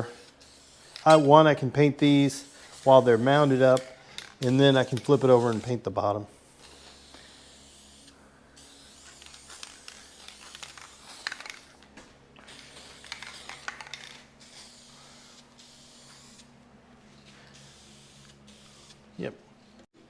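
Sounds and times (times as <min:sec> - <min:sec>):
aerosol spray can hissing: 0:00.0 - 0:01.3, 0:02.0 - 0:03.8, 0:06.5 - 0:11.7, 0:12.4 - 0:16.5, 0:17.5 - 0:19.0.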